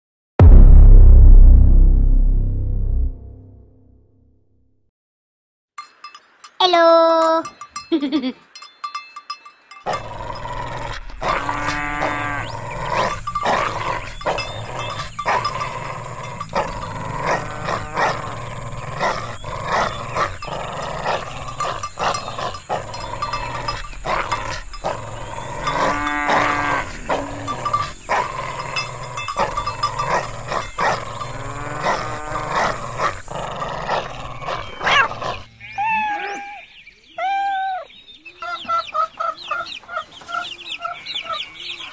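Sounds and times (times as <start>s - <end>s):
drawn-out animal cries: 9.8s - 41.9s
dog growling: 9.9s - 35.5s
chickens clucking: 38.2s - 41.9s.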